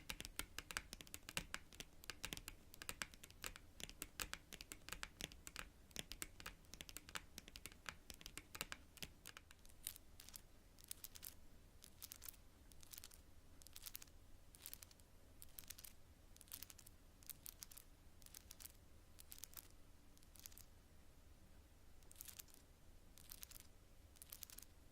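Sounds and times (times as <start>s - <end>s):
fingernails tapping on cards: 0.0s - 9.6s.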